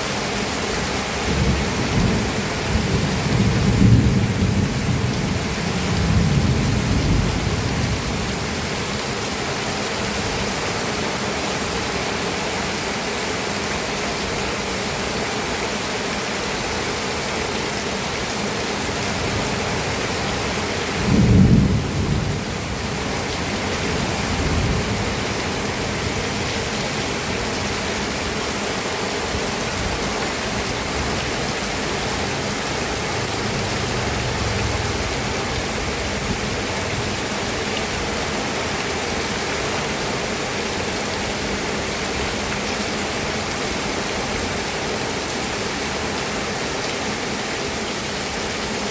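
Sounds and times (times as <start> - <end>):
heavy rain hissing: 0.0 - 48.9
thunder rumbling: 1.3 - 8.6, 19.8 - 28.3, 29.8 - 37.6.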